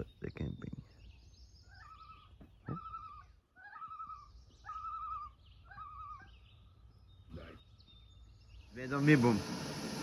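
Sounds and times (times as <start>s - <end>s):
faint songbirds: 0.0s - 10.0s
loon calling: 1.7s - 6.4s.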